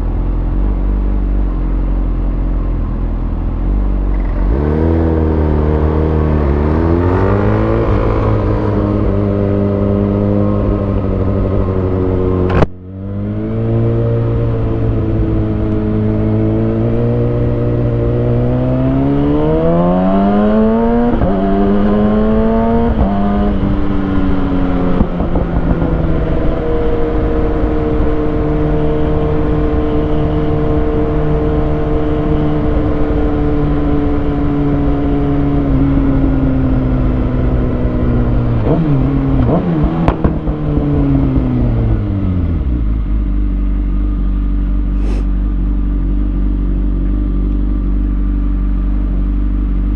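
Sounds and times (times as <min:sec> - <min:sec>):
motorcycle engine revving through gears: 0:00.0 - 0:49.9.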